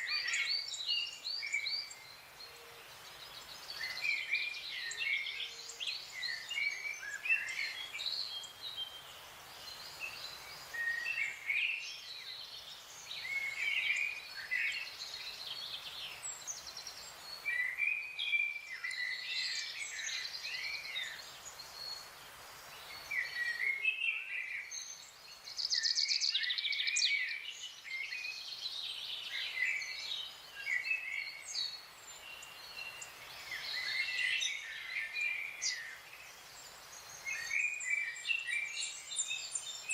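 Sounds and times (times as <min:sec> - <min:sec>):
faint background hiss: 0:00.0 - 0:39.9
birds chirping and whistling: 0:25.6 - 0:36.0, 0:36.9 - 0:39.9.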